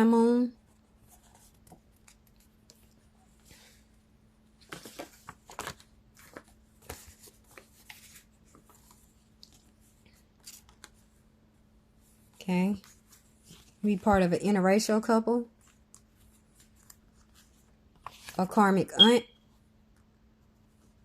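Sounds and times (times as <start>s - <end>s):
cards rustling and flicking: 4.6s - 11.1s.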